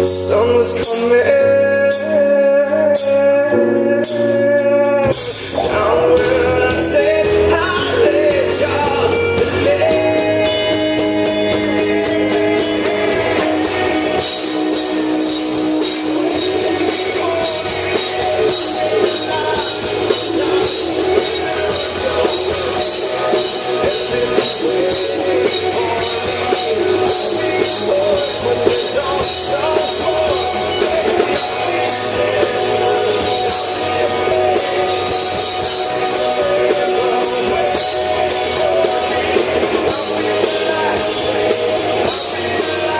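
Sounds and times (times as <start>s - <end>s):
live rock band playing: 0.0s - 42.9s.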